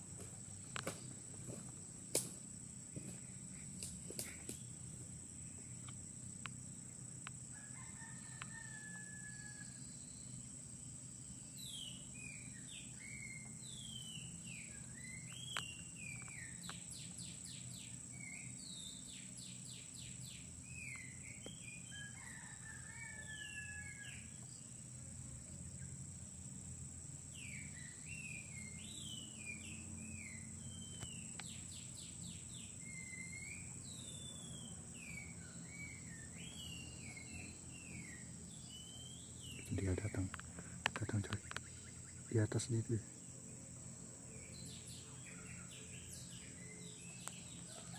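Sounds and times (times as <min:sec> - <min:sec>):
high insect drone: 0:00.0 - 0:47.9
bird whistled song with trills: 0:11.6 - 0:22.2, 0:27.4 - 0:39.6.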